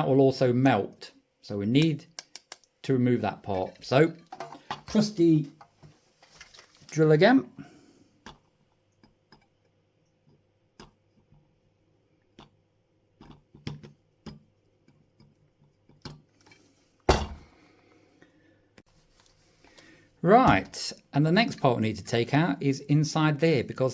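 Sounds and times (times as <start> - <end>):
light clicks and taps: 1.8 - 2.8.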